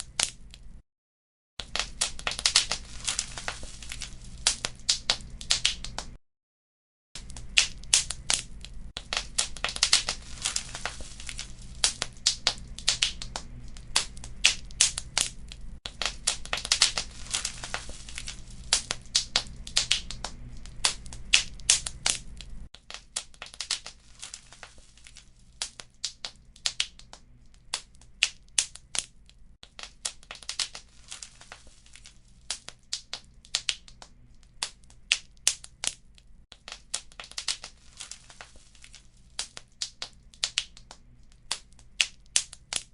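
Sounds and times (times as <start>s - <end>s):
wood fire crackling: 1.6s - 6.2s, 7.2s - 42.9s
low steady rumble: 7.2s - 22.7s.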